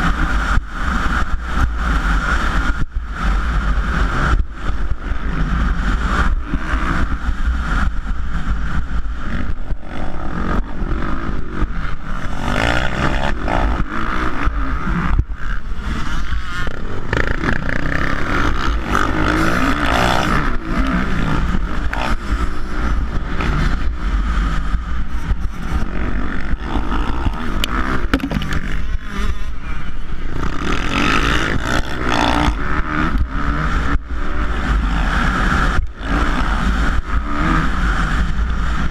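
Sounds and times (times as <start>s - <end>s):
motocross bikes revving: 0.0s - 38.9s
knocks and rattles: 28.0s - 28.6s.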